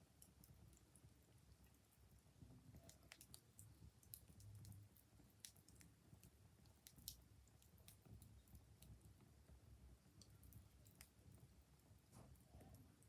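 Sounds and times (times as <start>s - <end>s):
wood fire crackling: 0.0s - 13.0s
fire pops and snaps: 2.7s - 9.0s.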